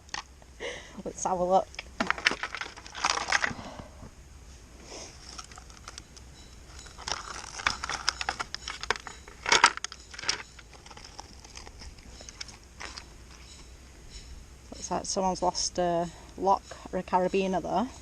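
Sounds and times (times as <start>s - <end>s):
small device clicking and rattling: 5.2s - 13.6s.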